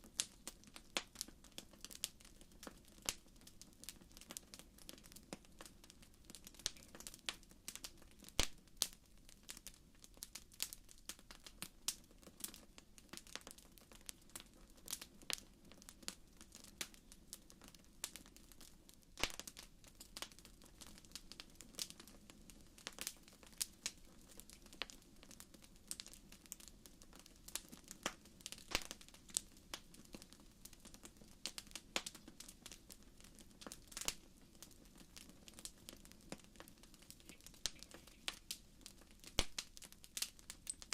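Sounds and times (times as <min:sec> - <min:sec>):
wood fire crackling: 0:00.0 - 0:40.9
low hiss of flames: 0:19.1 - 0:40.9.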